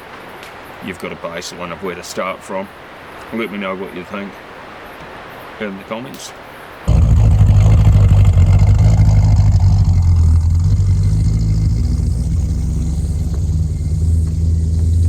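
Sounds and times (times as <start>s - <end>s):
vehicle engine running: 6.9s - 15.0s.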